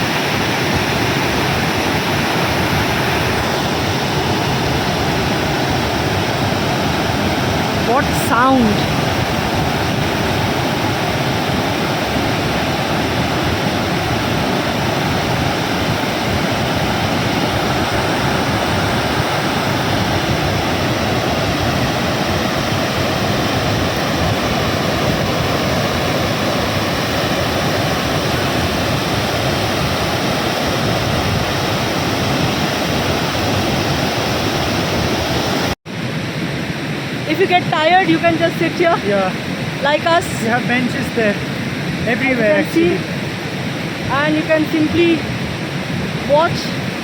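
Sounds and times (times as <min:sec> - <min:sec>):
waterfall roaring: 0:00.0 - 0:35.7, 0:36.7 - 0:47.0.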